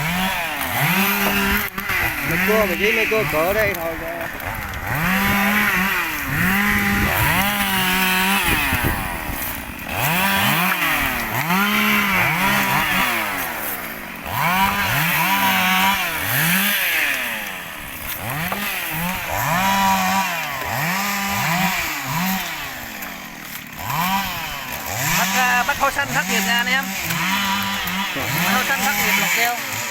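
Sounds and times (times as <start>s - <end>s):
chainsaw cutting logs: 0.0s - 29.9s.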